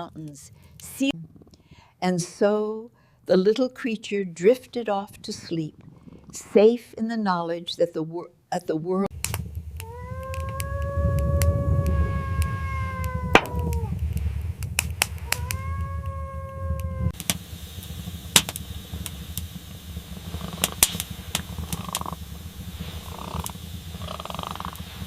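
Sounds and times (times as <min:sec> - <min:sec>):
sharp crackles: 0:09.1 - 0:25.0
low rumble: 0:09.4 - 0:25.0
kitten meowing: 0:09.8 - 0:13.9, 0:15.2 - 0:17.1.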